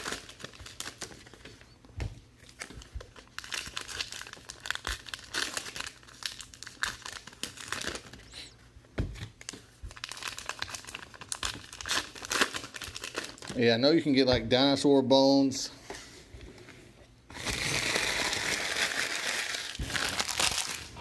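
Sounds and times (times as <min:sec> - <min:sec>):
card pack wrappers crinkling: 0:00.0 - 0:01.7, 0:02.4 - 0:08.5, 0:09.4 - 0:13.7, 0:17.3 - 0:21.0.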